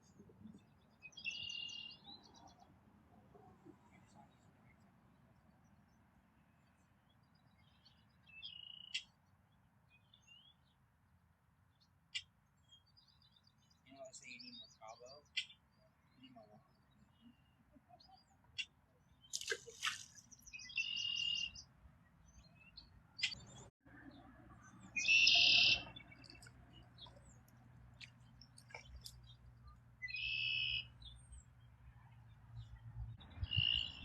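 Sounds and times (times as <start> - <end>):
bird calling: 25.0 - 26.4, 30.0 - 30.9.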